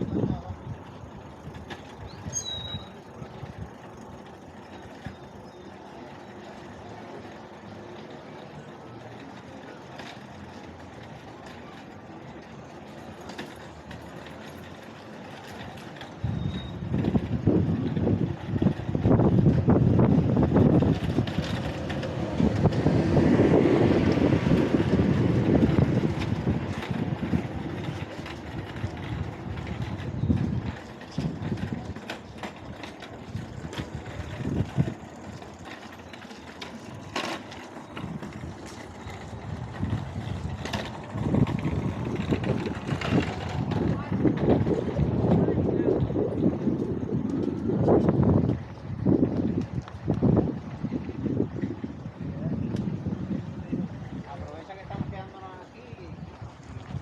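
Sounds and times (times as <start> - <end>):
wind rushing over microphone: 0.0 - 2.4, 16.2 - 35.6, 37.9 - 57.0
bike tyres rolling: 0.0 - 57.0.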